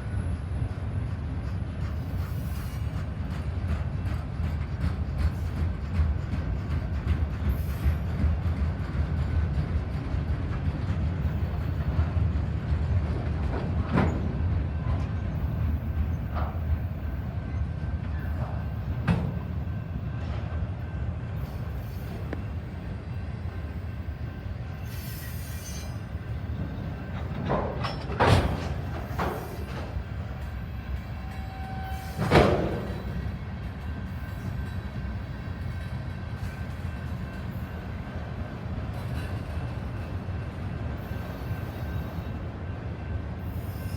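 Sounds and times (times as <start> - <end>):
freight train cars rolling: 0.0 - 43.9
sharp clanks and bangs: 27.2 - 30.0, 32.2 - 33.2.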